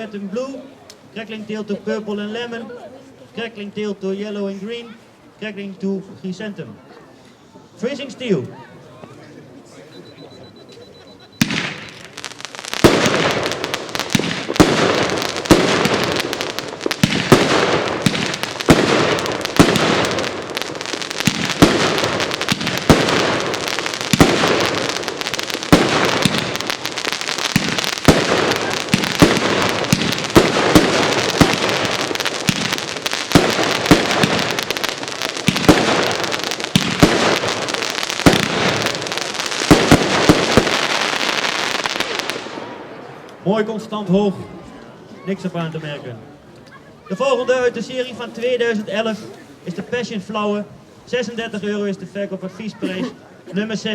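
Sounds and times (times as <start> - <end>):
firework crackling: 11.4 - 43.4.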